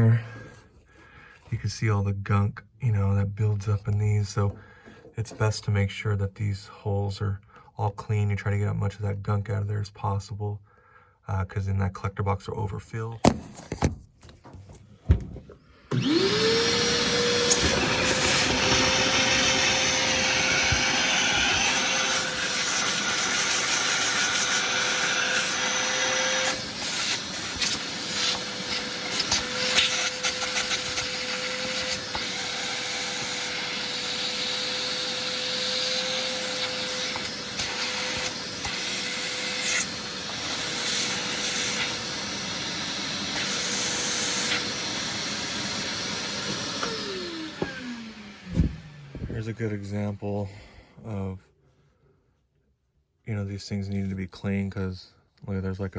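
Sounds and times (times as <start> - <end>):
vacuum cleaner motor: 15.9 - 49.5.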